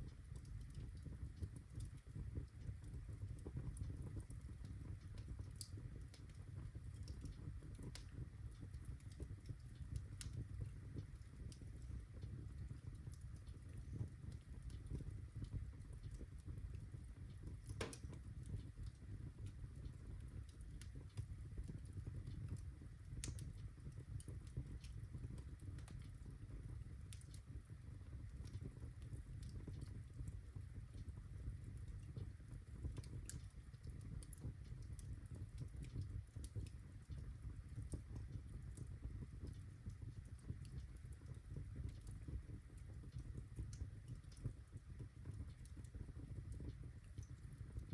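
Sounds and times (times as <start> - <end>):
fire pops: 0.0 - 26.2
fire crackling: 0.0 - 47.9.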